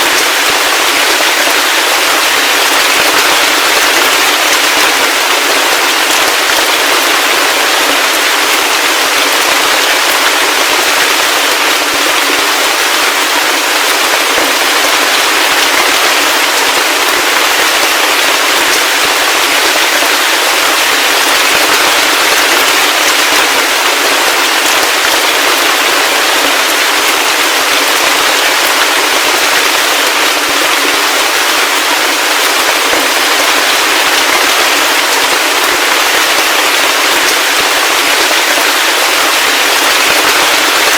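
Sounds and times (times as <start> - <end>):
heavy rain pattering: 0.0 - 40.9.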